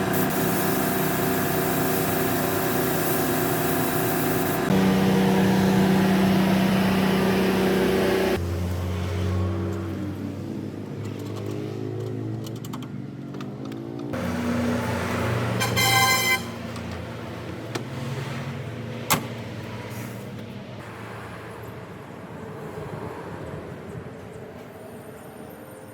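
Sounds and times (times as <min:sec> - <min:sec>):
vehicle engine running: 0:00.0 - 0:08.5
horn-like tone: 0:15.6 - 0:16.7.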